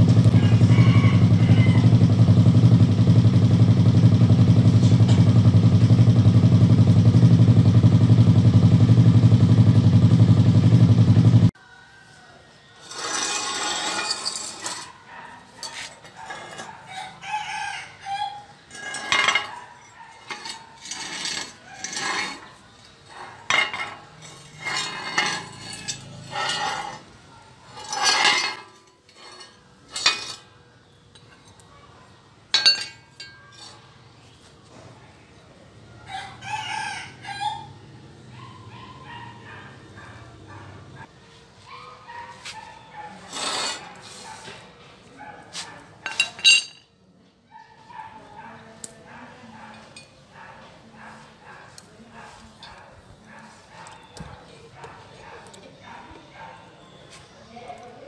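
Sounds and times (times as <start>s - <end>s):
engine running loud: 0.0s - 11.5s
rooster crowing: 0.2s - 2.3s, 11.6s - 13.0s, 15.7s - 22.4s, 36.0s - 37.9s
clinks of steel parts: 12.9s - 15.0s, 15.6s - 16.8s, 18.7s - 27.0s, 27.7s - 30.5s, 32.5s - 33.9s, 46.0s - 47.0s.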